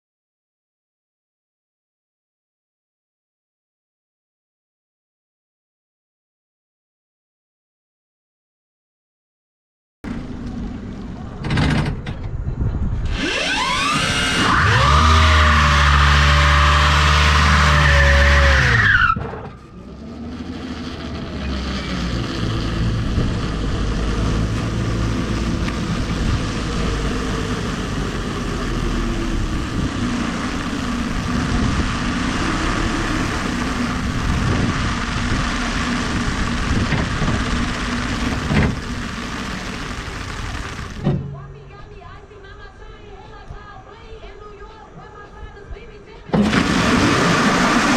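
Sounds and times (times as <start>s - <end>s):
wind and tyre rushing noise: 10.1s - 15.0s, 18.6s - 41.1s
electric motor whine: 13.1s - 18.8s, 19.8s - 41.0s, 46.4s - 47.9s.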